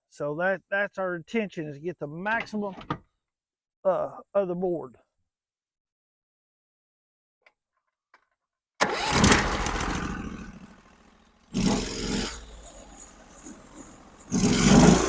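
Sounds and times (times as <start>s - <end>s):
sawmill engine starting and revving: 8.8s - 15.0s.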